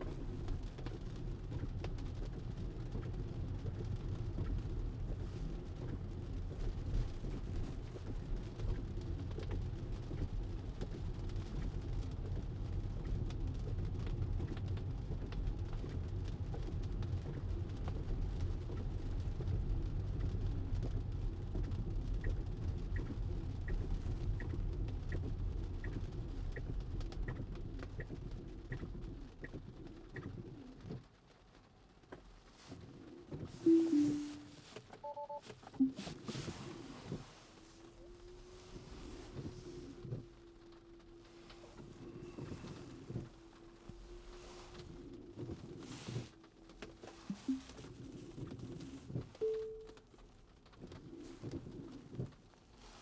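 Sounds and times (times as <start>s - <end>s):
car cabin road rumble: 0.0s - 33.6s, 35.6s - 49.4s
rain: 0.0s - 53.0s
turn signal ticking: 20.1s - 30.5s.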